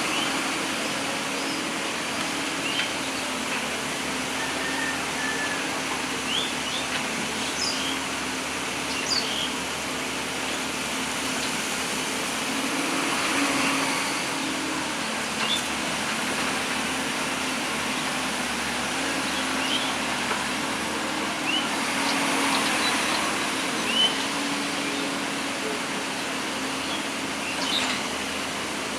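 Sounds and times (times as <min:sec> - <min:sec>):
excavator diesel engine droning: 0:00.0 - 0:28.9
birds chirping: 0:06.2 - 0:09.7, 0:18.9 - 0:20.2, 0:21.0 - 0:28.6.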